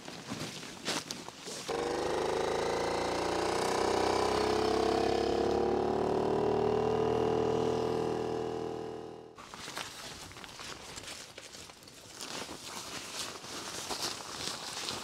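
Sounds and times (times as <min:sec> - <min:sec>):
small motor running: 0:01.7 - 0:09.4.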